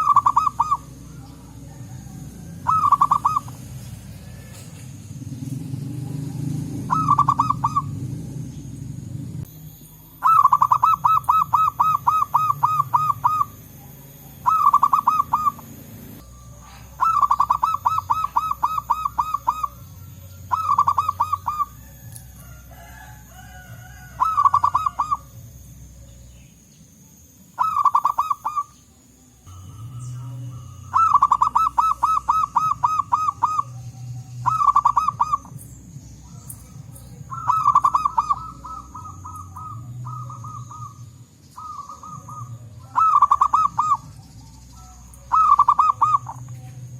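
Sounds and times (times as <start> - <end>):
low background rumble: 0.0 - 27.3, 28.7 - 46.9
doves cooing: 0.0 - 46.9.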